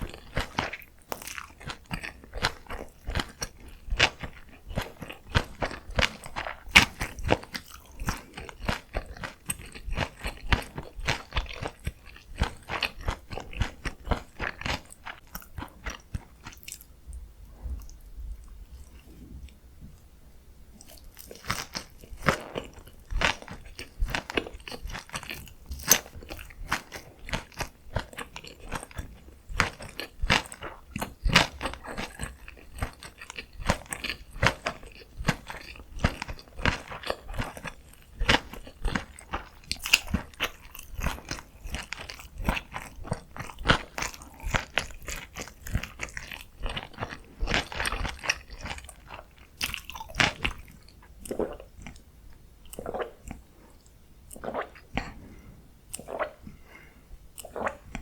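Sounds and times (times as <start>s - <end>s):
crunchy chewing: 0.0s - 19.6s, 20.8s - 58.0s
wet mouth clicks: 49.6s - 55.2s, 55.9s - 58.0s.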